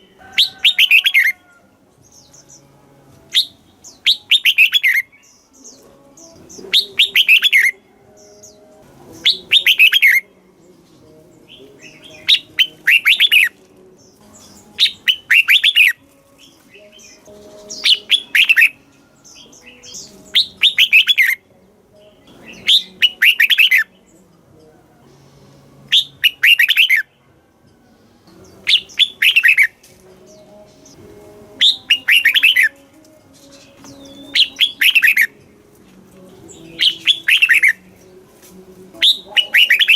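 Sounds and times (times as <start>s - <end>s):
bird singing clear falling notes: 3.3s - 10.3s, 11.1s - 24.4s, 25.7s - 27.2s, 28.3s - 35.5s, 36.4s - 38.2s, 39.0s - 39.9s.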